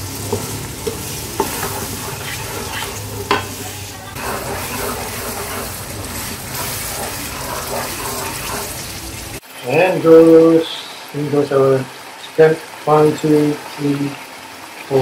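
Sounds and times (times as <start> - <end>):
spatula stirring and scraping: 0.0 - 9.4
paste sizzling in hot oil: 0.0 - 14.3
spatula tapping: 0.2 - 9.0.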